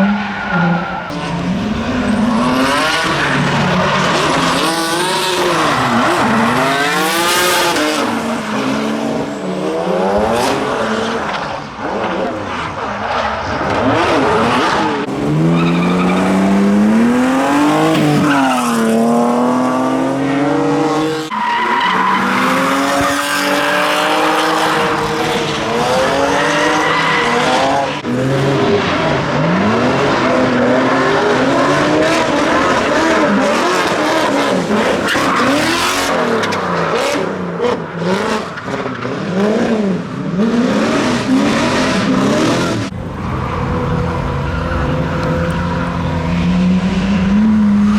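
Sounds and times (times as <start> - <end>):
car engines revving: 0.0 - 47.9
tyres screeching: 15.1 - 18.6, 42.5 - 47.5.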